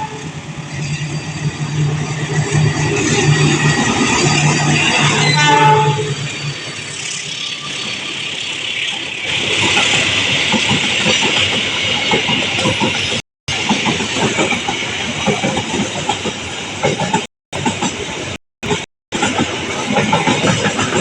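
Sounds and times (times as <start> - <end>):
hissing rush of passing train: 0.0 - 21.0
train wheels clattering over rail joints: 8.9 - 21.0.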